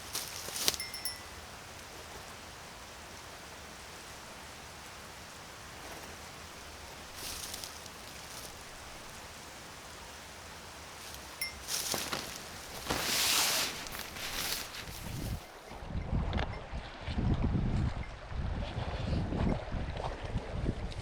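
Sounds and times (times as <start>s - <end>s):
brief rustle: 0.0s - 1.2s, 7.1s - 9.2s, 11.0s - 15.6s
soft outdoor hiss: 0.0s - 15.8s.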